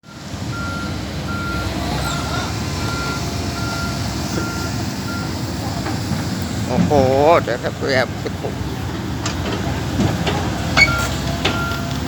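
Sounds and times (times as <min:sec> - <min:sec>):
backhoe warning alarm beeping: 0:00.0 - 0:06.1, 0:10.2 - 0:12.0
engine running steadily: 0:00.1 - 0:12.0.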